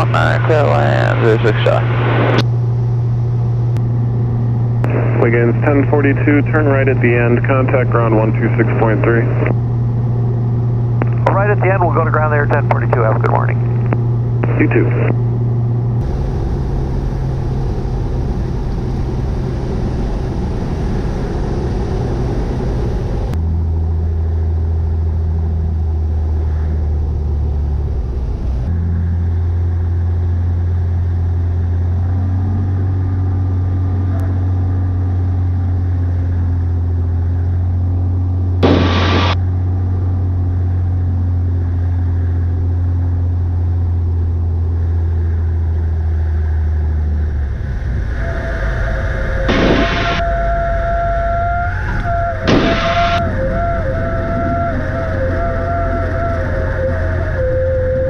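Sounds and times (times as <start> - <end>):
propeller plane engine droning: 0.0 - 58.0
brief burst of noise: 38.6 - 39.4.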